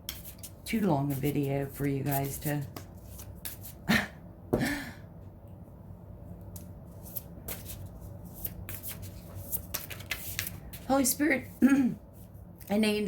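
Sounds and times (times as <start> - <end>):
cards being shuffled by hand: 0.1 - 3.8, 6.5 - 11.2.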